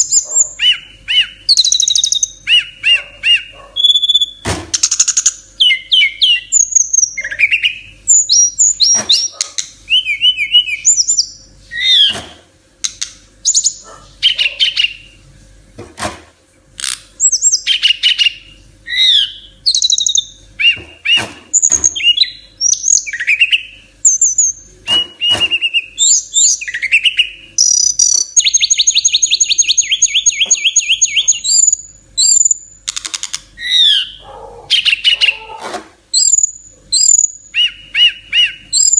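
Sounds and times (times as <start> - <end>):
songbird singing: 0.0 - 15.2, 17.2 - 38.9
bird rattling trill: 1.5 - 4.2.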